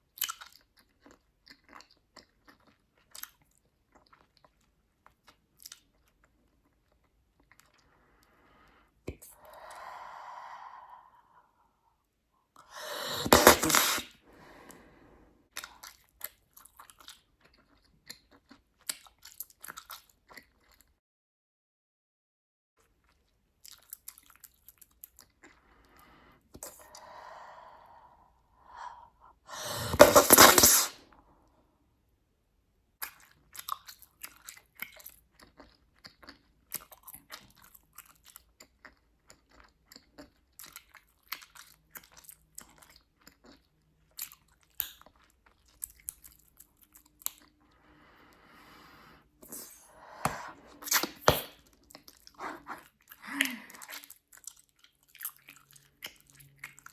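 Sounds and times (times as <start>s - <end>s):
gum chewing wet snaps: 0.1s - 7.9s, 15.6s - 20.8s, 33.0s - 56.9s.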